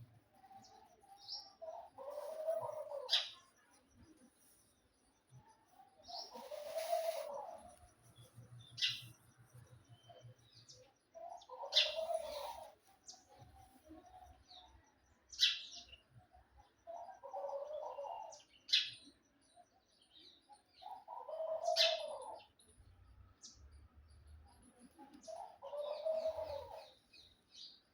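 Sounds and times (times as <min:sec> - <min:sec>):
low bird call: 0:06.1 - 0:07.7.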